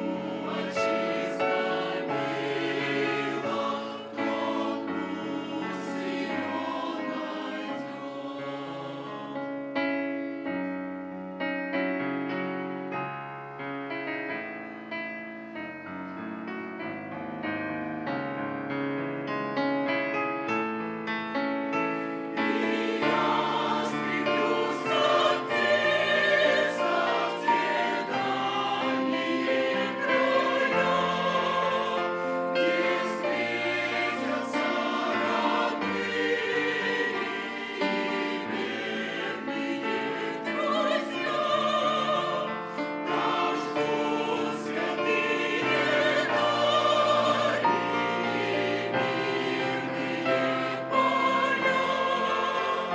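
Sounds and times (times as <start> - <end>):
choir singing a hymn: 0.0 - 10.6, 20.1 - 52.9
piano accompaniment: 0.0 - 52.9.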